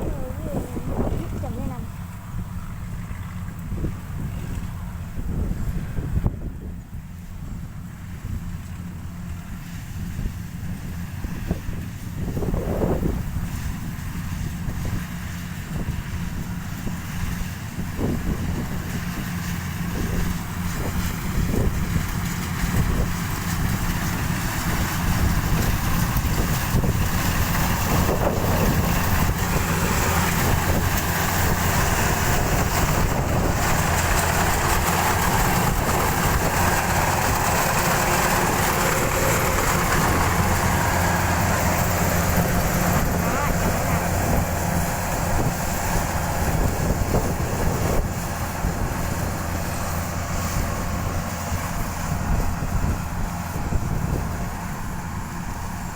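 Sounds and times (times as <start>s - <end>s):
combine harvester engine drone: 0.0s - 55.9s.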